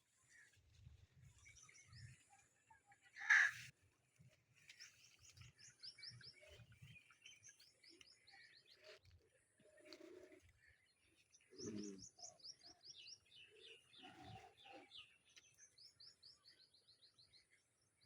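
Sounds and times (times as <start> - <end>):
small birds chirping: 9.7 - 17.6.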